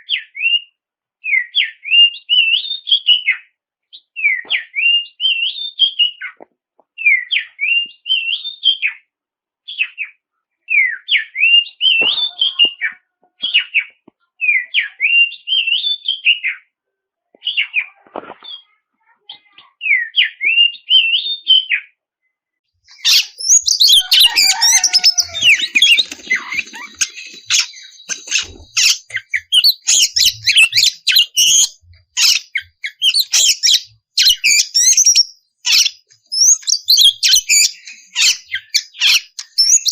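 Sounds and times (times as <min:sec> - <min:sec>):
bird singing whistled phrases: 0:22.9 - 0:39.9.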